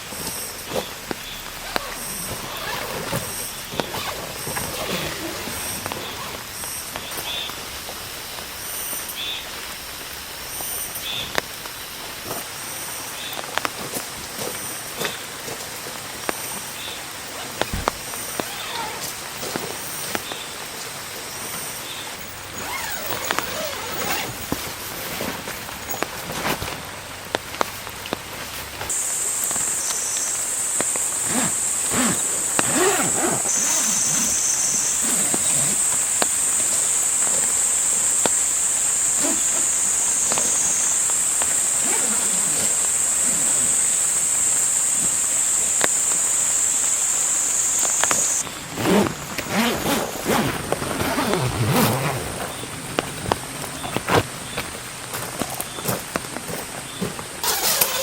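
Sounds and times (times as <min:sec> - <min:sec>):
raindrops tapping: 0:00.0 - 0:31.8, 0:34.3 - 0:46.4
heavy rain: 0:00.0 - 0:57.5
insects buzzing: 0:00.0 - 0:58.0
low warbling calls: 0:29.0 - 0:45.0.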